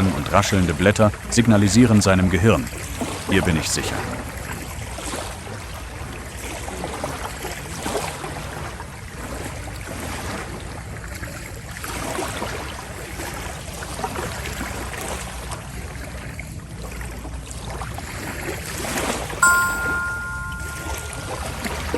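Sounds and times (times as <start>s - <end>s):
bright chime ringing: 19.4s - 21.9s.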